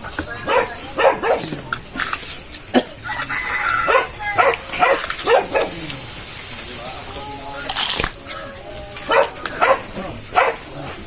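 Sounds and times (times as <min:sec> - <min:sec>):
dog barking: 0:00.4 - 0:01.6, 0:03.8 - 0:06.0, 0:09.0 - 0:11.0.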